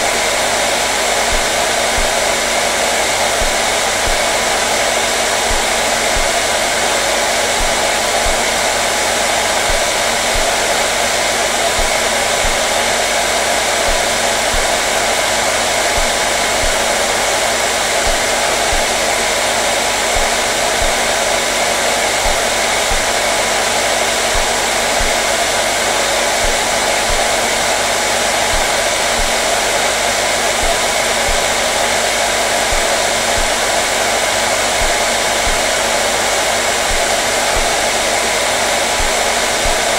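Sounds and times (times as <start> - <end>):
faint motor hum: 0.0 - 39.9
hair dryer blowing air: 0.0 - 39.9.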